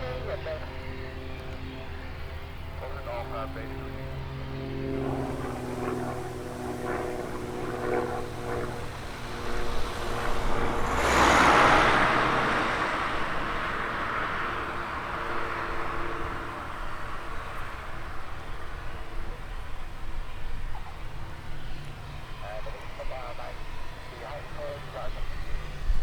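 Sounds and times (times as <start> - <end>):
propeller aircraft passing: 0.0 - 26.0.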